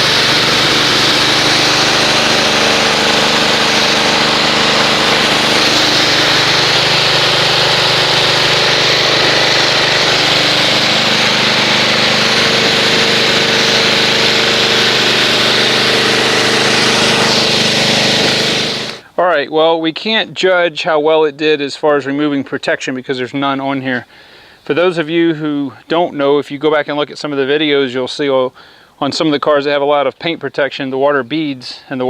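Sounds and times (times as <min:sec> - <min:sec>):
pressure washer motor hum: 0:00.0 - 0:19.0.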